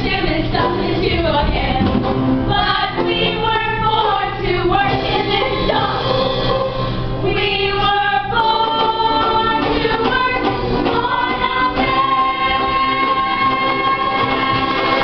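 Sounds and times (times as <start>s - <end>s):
cast singing in harmony: 7.4s - 15.0s.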